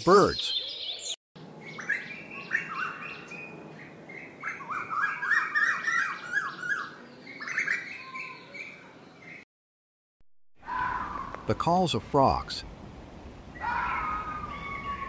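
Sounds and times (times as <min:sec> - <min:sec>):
birds singing whistled notes: 0:00.2 - 0:09.4.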